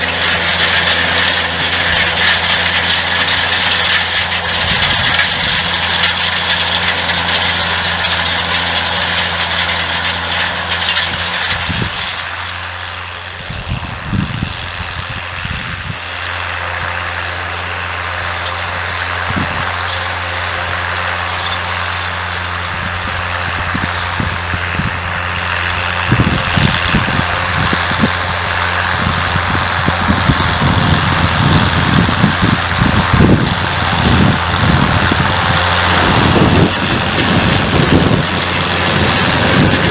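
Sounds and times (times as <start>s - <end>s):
tractor diesel engine running: 0.0s - 39.9s
low knocks and rumbles: 28.9s - 39.9s.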